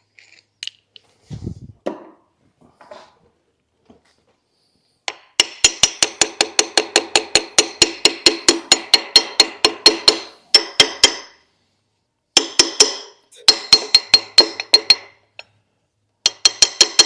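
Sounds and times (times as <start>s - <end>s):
hammer striking metal: 5.1s - 11.4s, 12.4s - 15.2s, 16.2s - 17.0s.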